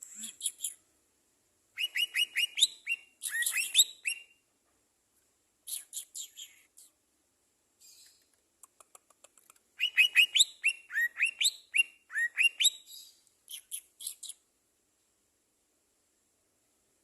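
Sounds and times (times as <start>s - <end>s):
songbird chirping: 0.0s - 1.0s, 1.6s - 7.0s, 7.6s - 15.2s
faint clicks: 8.0s - 9.7s.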